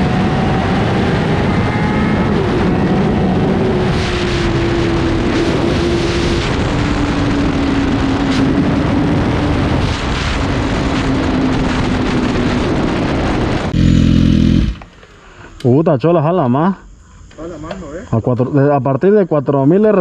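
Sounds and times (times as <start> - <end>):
loud motorcycle engine: 11.2 - 15.0
steady engine note: 13.6 - 15.0.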